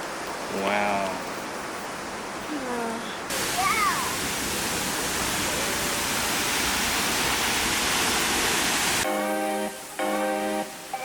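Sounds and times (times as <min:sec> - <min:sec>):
waterfall rushing: 0:03.2 - 0:11.0.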